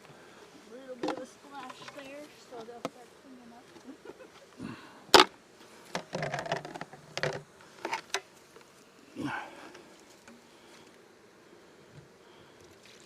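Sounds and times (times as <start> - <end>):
wooden hive boxes knocking and scraping: 0.9 - 3.0, 5.9 - 8.6.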